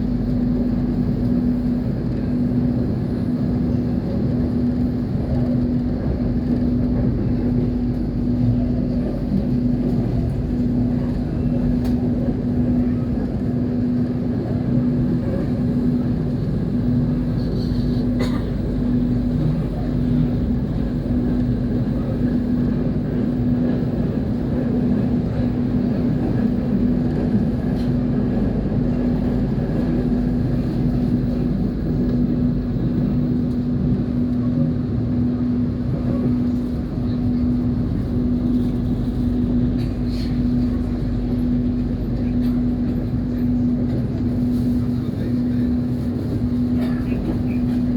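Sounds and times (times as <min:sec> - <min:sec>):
constant hum: 0:00.0 - 0:47.9
moving train rumble: 0:00.0 - 0:47.9.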